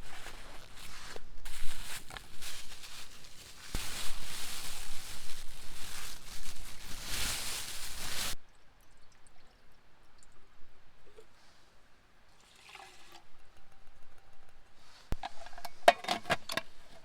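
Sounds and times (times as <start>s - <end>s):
rustling and handling noises: 0.0s - 8.4s, 14.6s - 17.0s.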